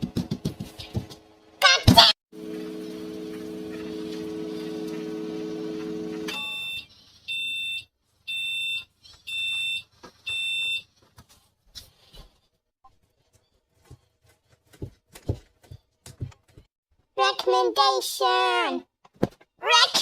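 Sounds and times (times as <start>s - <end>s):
microwave oven humming: 2.4s - 6.7s.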